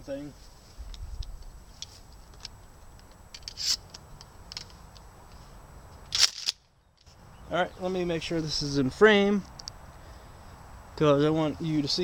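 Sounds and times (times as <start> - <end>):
rustle: 0.0 - 12.0
handling clicks and scrapes: 0.8 - 7.2.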